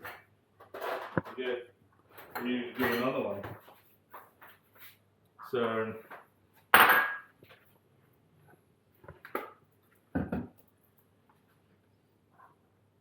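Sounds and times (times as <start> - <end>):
bowl and utensils clattering: 2.1 - 3.5, 6.8 - 7.4.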